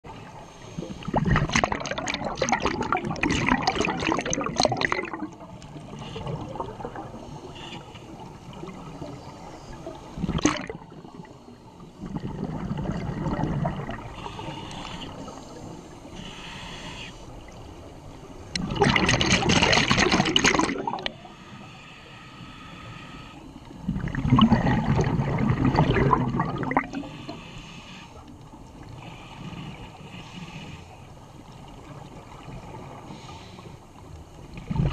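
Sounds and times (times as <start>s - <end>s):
underwater exhaled bubbles rushing: 0.2s - 7.5s, 8.1s - 14.4s, 18.5s - 21.2s, 23.8s - 27.4s, 34.5s - 34.9s.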